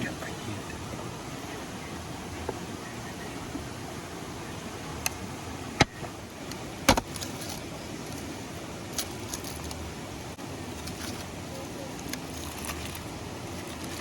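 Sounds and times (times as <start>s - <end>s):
steady hiss: 0.0s - 14.0s
sharp knocks: 6.9s - 7.1s.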